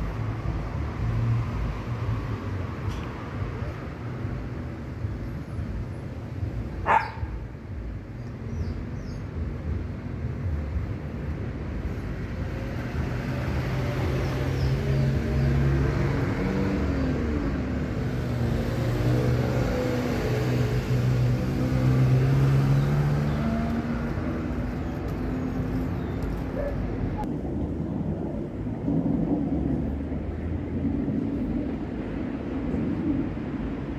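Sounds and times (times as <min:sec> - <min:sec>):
street noise: 0:00.0 - 0:33.9
vehicle engine humming: 0:14.0 - 0:33.2.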